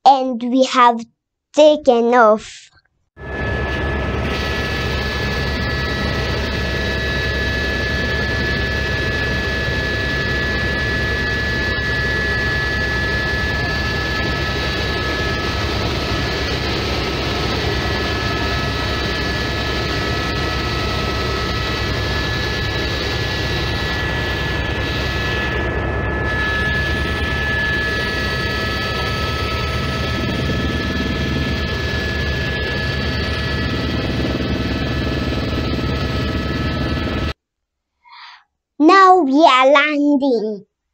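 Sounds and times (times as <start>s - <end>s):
helicopter rotors rumbling: 3.2s - 37.4s
high turbine whine: 3.2s - 37.4s.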